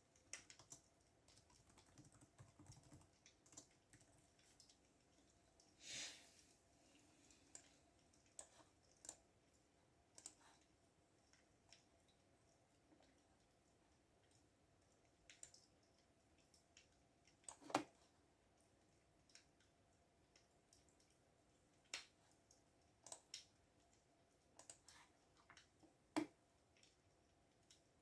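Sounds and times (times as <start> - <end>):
faint room hum: 0.0 - 28.0
keyboard keys clicking: 0.3 - 4.8.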